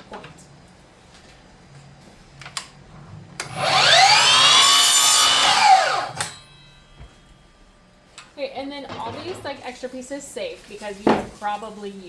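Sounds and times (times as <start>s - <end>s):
chop saw cutting wood: 3.4s - 6.4s.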